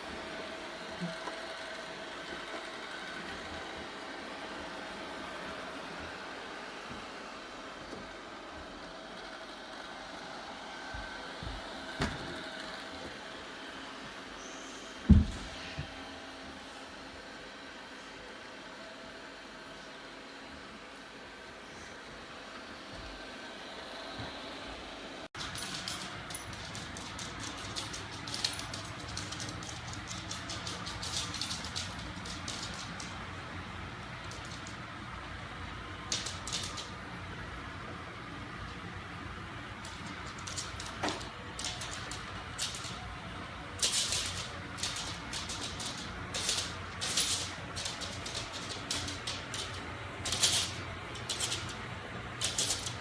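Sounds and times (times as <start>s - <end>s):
robot vacuum cleaner whirring: 0.0s - 25.3s
small clicks and rattles: 25.4s - 33.2s, 36.1s - 37.0s, 39.8s - 43.0s, 43.8s - 53.0s.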